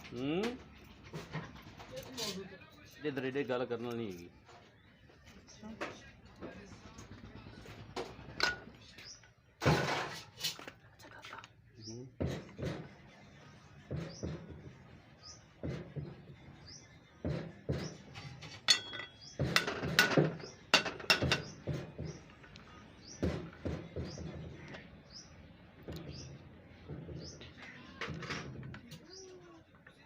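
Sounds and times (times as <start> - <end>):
small birds chirping: 0.1 - 9.6, 10.8 - 30.0
metal tools clinking: 18.5 - 21.4.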